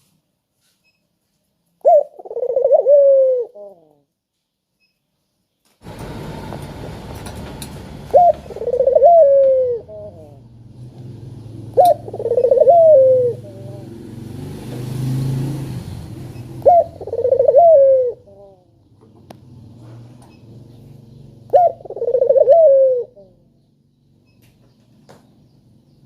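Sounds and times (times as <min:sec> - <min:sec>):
dove cooing: 0:01.8 - 0:04.0, 0:08.0 - 0:10.5, 0:11.3 - 0:14.0, 0:16.3 - 0:18.8, 0:21.4 - 0:23.6.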